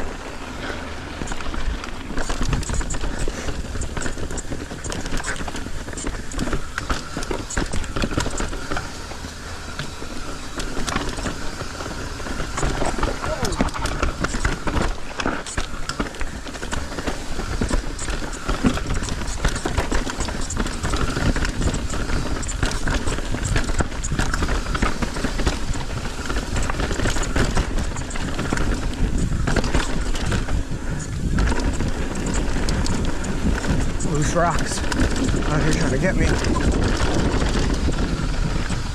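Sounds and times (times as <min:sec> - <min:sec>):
bike rattling and knocking: 0:00.0 - 0:38.9
bike tyres rolling over rocks: 0:00.0 - 0:38.9.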